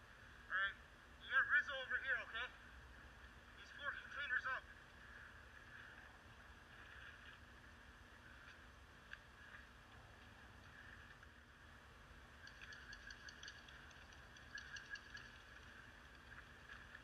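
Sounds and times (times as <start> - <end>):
soft ticks: 8.4 - 11.4, 12.4 - 17.0.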